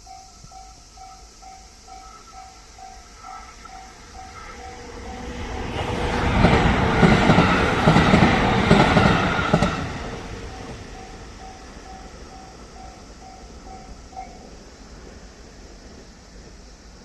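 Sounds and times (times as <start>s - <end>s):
crossing warning bell dinging: 0.0s - 14.6s
train wheels clattering over rail joints: 1.9s - 13.8s.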